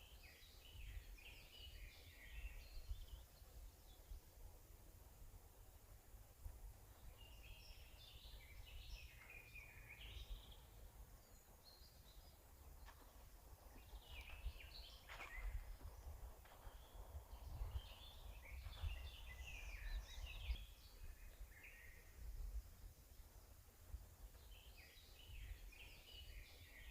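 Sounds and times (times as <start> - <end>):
songbirds singing: 0.0 - 26.9
steady low rumble: 2.9 - 21.3.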